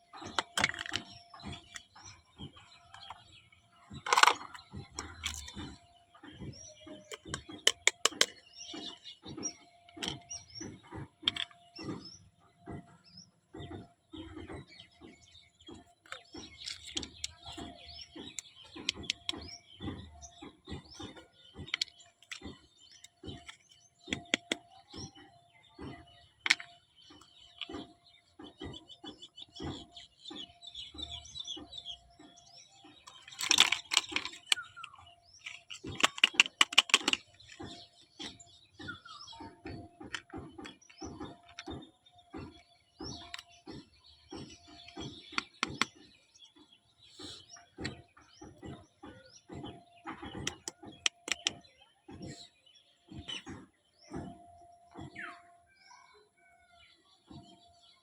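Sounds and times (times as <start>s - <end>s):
toy kitchen pieces clicking: 0.2s - 2.0s, 3.9s - 5.8s, 6.9s - 8.6s, 11.2s - 11.7s, 15.8s - 20.1s, 21.7s - 24.8s, 26.4s - 27.8s, 33.0s - 38.5s, 39.5s - 41.7s, 43.2s - 43.6s, 44.8s - 46.0s, 50.3s - 51.6s.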